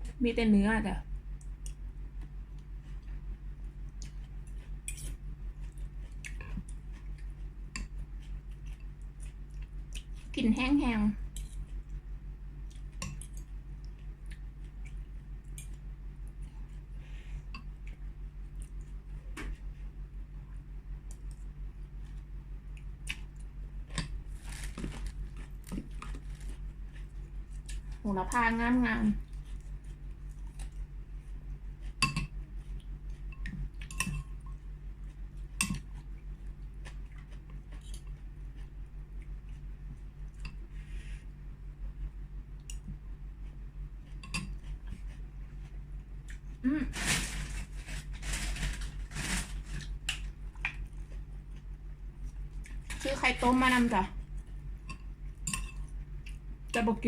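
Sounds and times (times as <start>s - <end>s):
steady low hum: 0.0s - 57.0s
chewing: 1.4s - 10.4s, 11.2s - 19.2s, 21.0s - 28.1s, 29.2s - 41.0s, 42.0s - 46.6s, 49.7s - 53.1s, 54.1s - 56.8s
cutlery clinking on a bowl: 33.3s - 34.3s, 44.2s - 44.6s.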